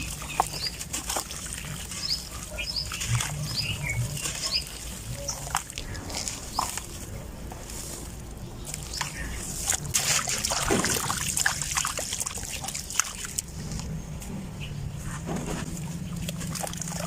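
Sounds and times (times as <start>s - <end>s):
dry clumps crumbling: 0.0s - 11.6s.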